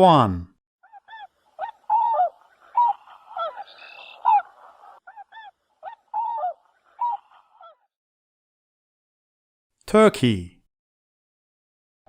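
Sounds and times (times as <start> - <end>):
swans calling: 0.8 - 7.9.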